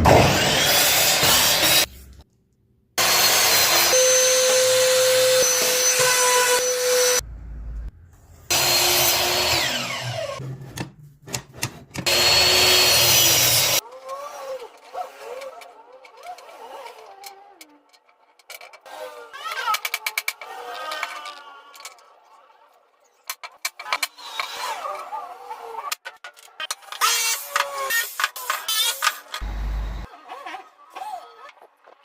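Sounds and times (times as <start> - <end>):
power tools cutting wood: 0.0 - 1.9, 3.0 - 7.2, 8.5 - 10.5, 12.0 - 17.6, 18.8 - 22.2, 23.8 - 26.0, 26.8 - 30.6.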